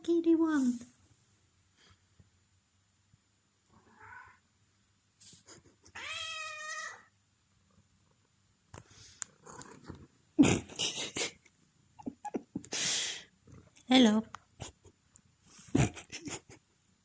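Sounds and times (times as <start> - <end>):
cat meowing loudly: 3.9 - 4.4, 5.9 - 7.1.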